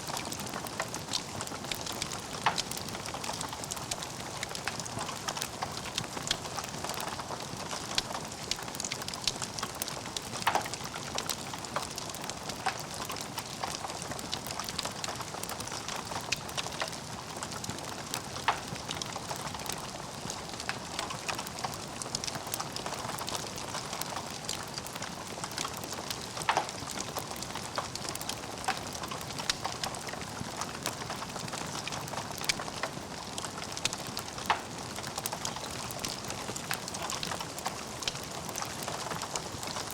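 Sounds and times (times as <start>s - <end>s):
fire crackling: 0.0s - 39.9s.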